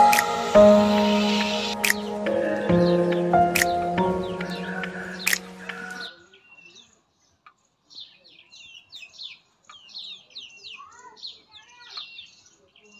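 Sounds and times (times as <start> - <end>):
background music: 0.0 - 6.1
small birds chirping: 0.0 - 12.9
faint clicks: 5.3 - 6.0.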